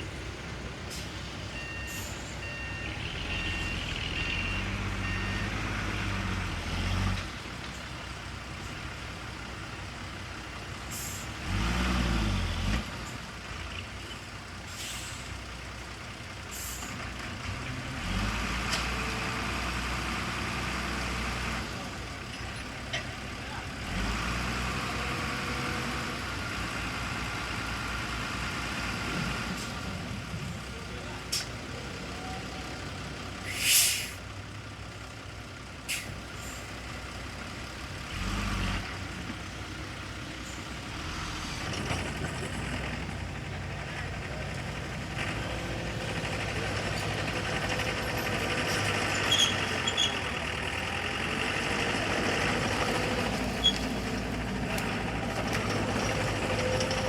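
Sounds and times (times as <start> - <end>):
heavy diesel machinery running: 0.0 - 57.0
air brake hiss: 10.9 - 11.3, 14.7 - 15.3, 33.4 - 34.2, 35.9 - 36.7.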